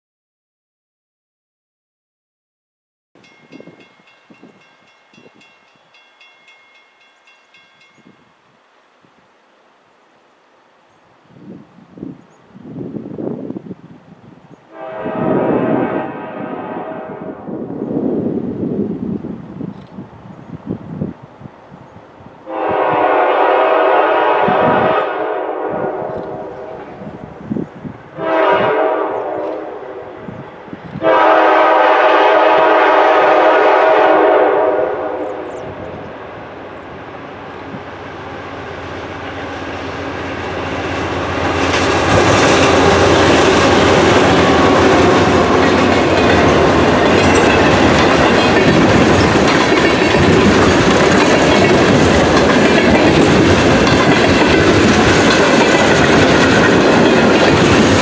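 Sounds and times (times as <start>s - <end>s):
train horn: 14.7s - 17.7s, 22.4s - 27.2s, 28.2s - 36.2s, 42.2s - 48.8s
locomotive rumble: 25.6s - 58.0s.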